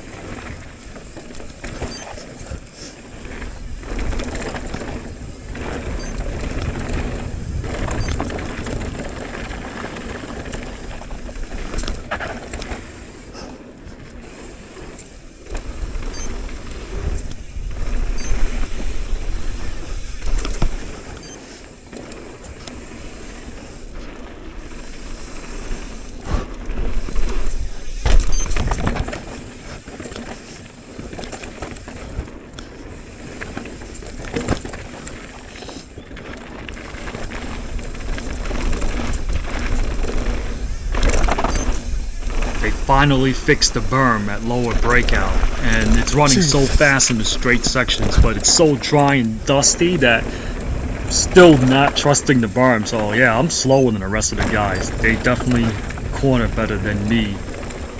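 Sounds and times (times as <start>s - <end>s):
bike rattling and knocking: 0.0s - 57.9s
bike tyres on dirt and rock: 0.0s - 57.9s.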